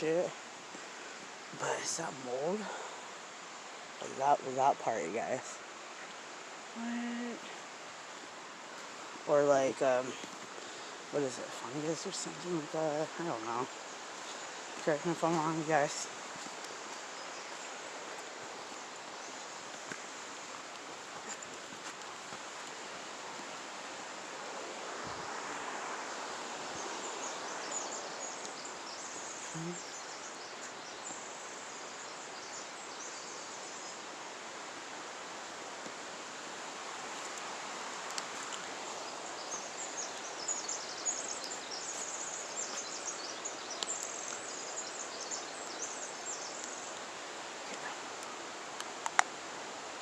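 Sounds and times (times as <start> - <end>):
forest background hiss: 0.0 - 50.0
faint crackling and rustling: 7.4 - 23.9, 36.9 - 47.0.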